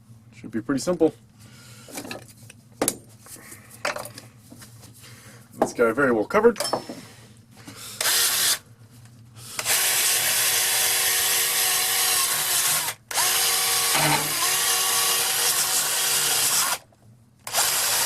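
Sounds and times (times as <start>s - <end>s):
power tool polishing wheel on steel: 13.8s - 14.8s.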